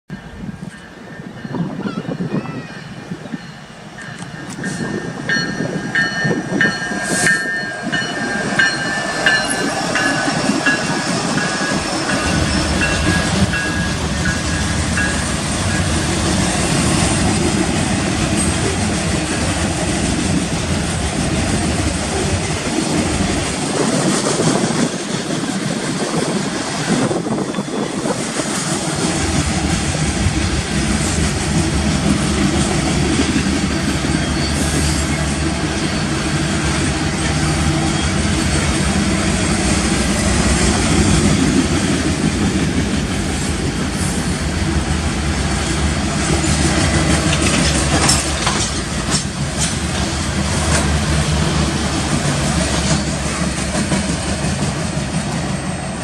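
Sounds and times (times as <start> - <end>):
freight train rumbling past: 0.1 - 56.0
high steady tones: 2.7 - 22.6.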